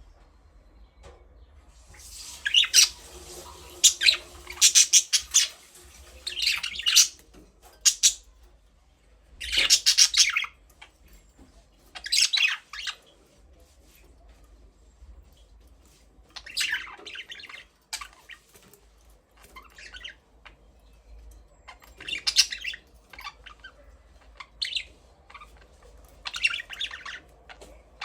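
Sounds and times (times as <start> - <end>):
budgerigars squawking and chirping: 3.7 - 5.6, 6.3 - 7.2, 7.8 - 8.2, 9.4 - 10.5, 12.0 - 13.0, 16.4 - 18.4, 21.7 - 27.3.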